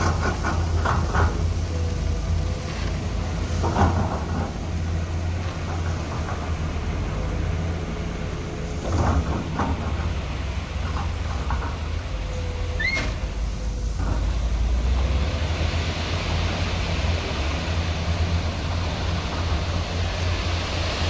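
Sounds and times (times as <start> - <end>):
diesel machinery rumbling: 0.0 - 21.0.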